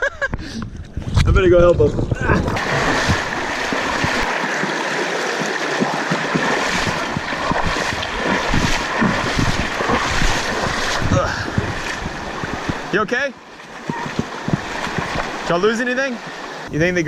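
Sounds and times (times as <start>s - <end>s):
wind buffeting microphone: 0.3s - 4.4s, 6.1s - 13.0s, 13.8s - 15.5s
river water through rapids: 2.5s - 16.7s.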